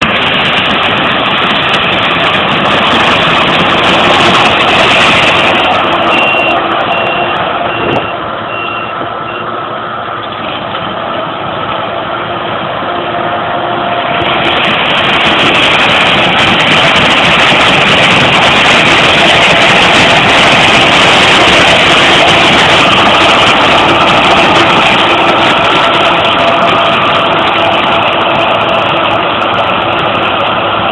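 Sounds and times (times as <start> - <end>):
combine harvester machinery din: 0.0 - 30.9
high beeps: 6.0 - 9.5.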